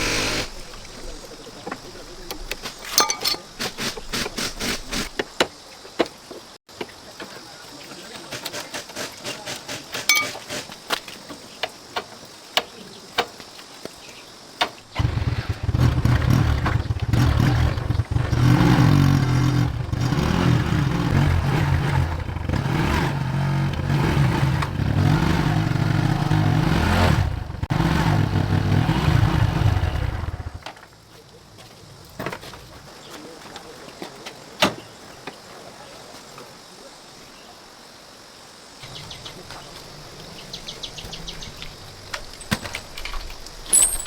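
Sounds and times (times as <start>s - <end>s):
tractor engine running: 15.0s - 30.6s.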